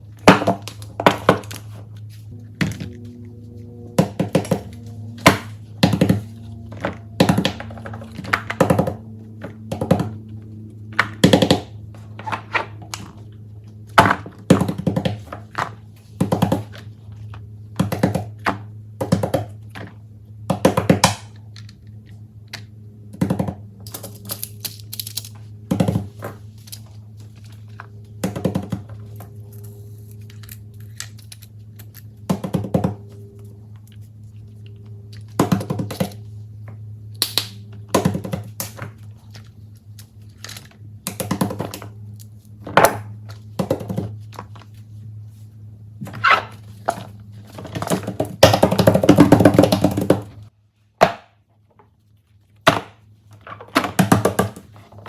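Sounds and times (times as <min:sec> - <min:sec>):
soft background music: 0:02.2 - 0:12.1
fidget toys clicking and knocking: 0:47.6 - 0:50.3.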